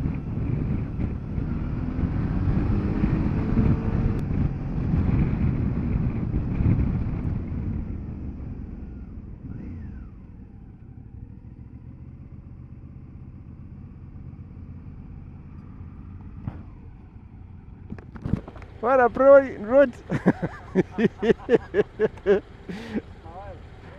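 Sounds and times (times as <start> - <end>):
wind rushing over microphone: 0.0 - 10.1.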